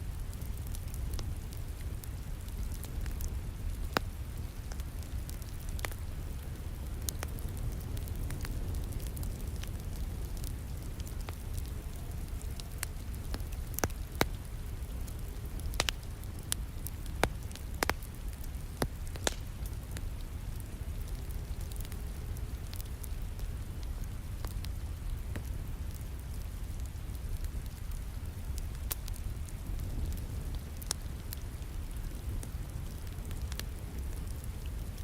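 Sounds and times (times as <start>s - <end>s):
wood fire crackling and popping: 0.0s - 35.0s.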